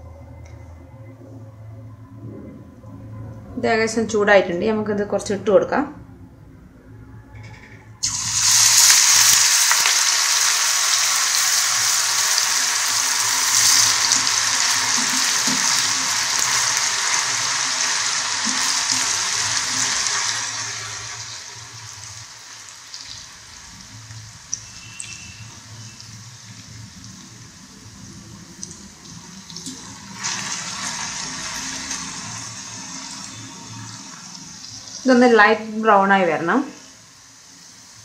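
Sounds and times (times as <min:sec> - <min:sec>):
potato sizzling in hot oil: 0:08.0 - 0:38.0.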